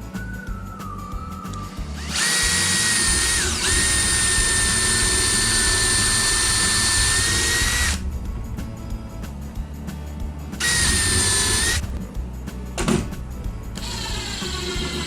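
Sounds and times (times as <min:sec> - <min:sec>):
electric drill whining: 0:01.8 - 0:08.0, 0:10.6 - 0:12.0, 0:13.8 - 0:15.0.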